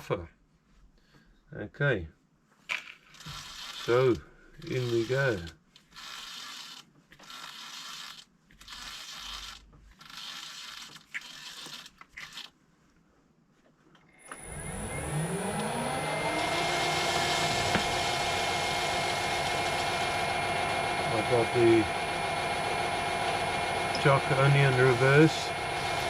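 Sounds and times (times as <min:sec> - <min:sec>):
metal parts scraping: 0:02.8 - 0:12.5
lathe motor whining: 0:03.2 - 0:11.8, 0:14.2 - 0:26.0.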